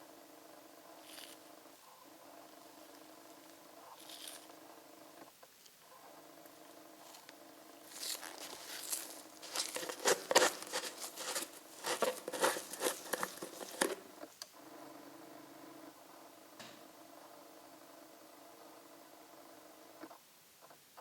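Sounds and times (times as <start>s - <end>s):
faint steady hum: 0.0s - 21.0s
crinkling and rustling: 1.0s - 1.4s, 4.0s - 4.5s, 7.0s - 14.1s.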